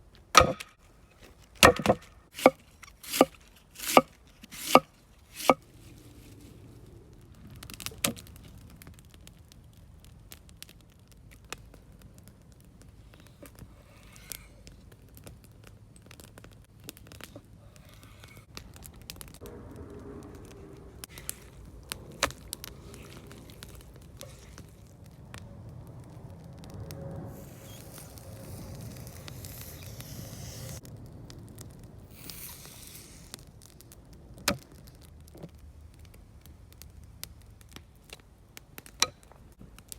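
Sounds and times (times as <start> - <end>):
campfire crackling: 0.0 - 39.9
sharp pops and knocks: 0.3 - 0.8, 1.6 - 5.6
faint hiss: 27.1 - 30.9, 32.0 - 33.7.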